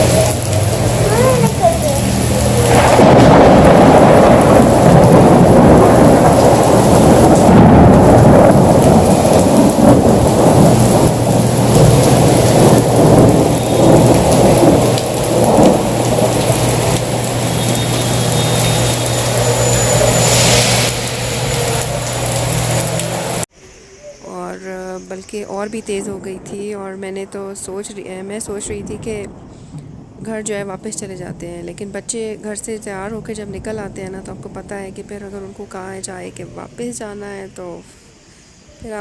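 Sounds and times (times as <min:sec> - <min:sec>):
heavy rain pouring: 0:00.0 - 0:23.5
low rumble: 0:00.0 - 0:23.5.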